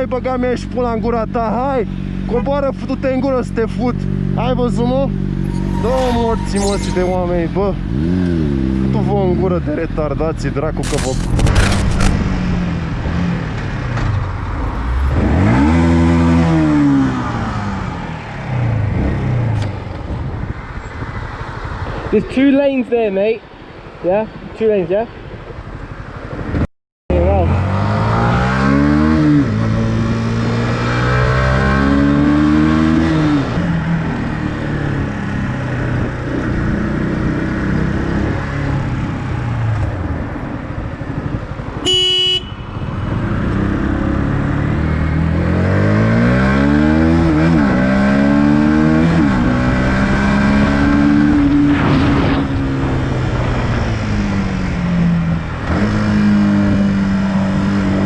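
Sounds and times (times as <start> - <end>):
wind: 7.2 - 58.0
vehicle horn blast: 41.8 - 42.8.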